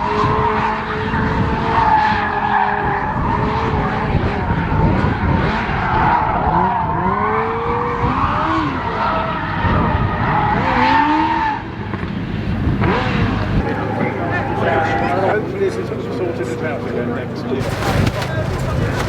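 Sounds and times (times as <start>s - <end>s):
rally car engine revving: 0.0s - 19.0s
tyres squealing: 13.8s - 19.0s.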